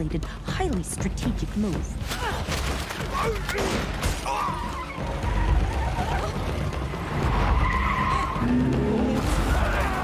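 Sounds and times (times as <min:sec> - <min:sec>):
car tyres skidding and squealing: 0:04.6 - 0:08.6.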